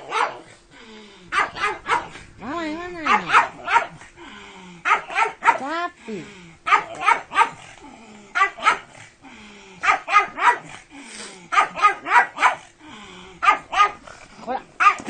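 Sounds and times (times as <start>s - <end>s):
dog barking: 0.0s - 0.5s, 1.3s - 2.2s, 3.0s - 4.0s, 4.8s - 5.7s, 6.7s - 7.7s, 8.4s - 9.0s, 9.8s - 10.8s, 11.5s - 12.7s, 13.4s - 14.0s, 14.8s - 15.0s.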